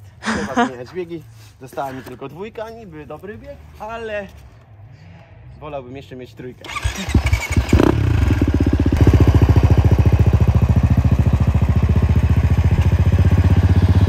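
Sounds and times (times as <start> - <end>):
dirt bike engine idling: 6.7 - 14.0.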